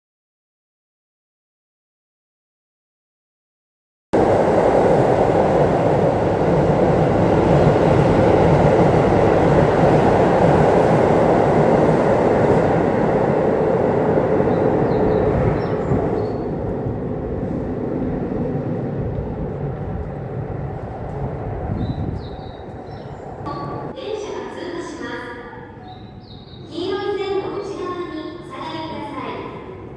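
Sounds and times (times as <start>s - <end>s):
electric train wheels rumbling: 4.2s - 24.0s.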